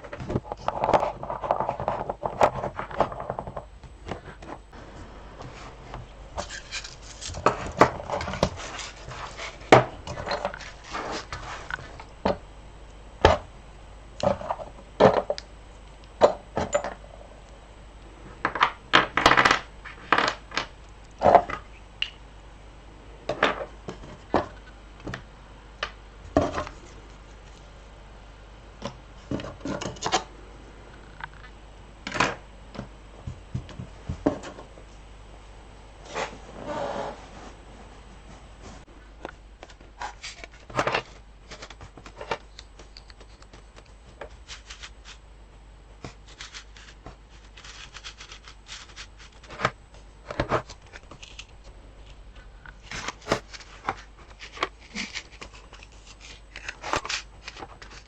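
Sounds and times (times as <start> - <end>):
scraping and rustling: 0.0 - 12.1, 36.0 - 38.9, 39.6 - 45.3, 46.0 - 58.0.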